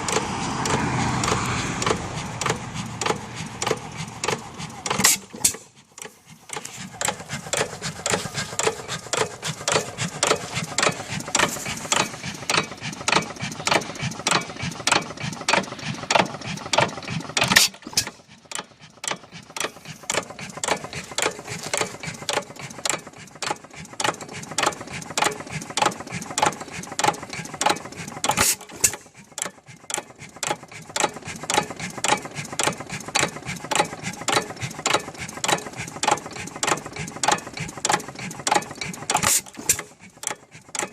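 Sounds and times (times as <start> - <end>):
engine bang: 0.0 - 5.7
engine clattering clicks: 0.0 - 40.9.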